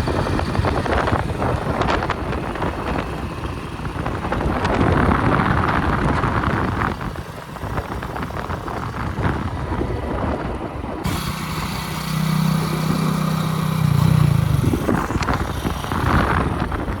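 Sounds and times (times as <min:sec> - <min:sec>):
diesel engine under load: 0:00.0 - 0:17.0
steady engine note: 0:11.0 - 0:17.0.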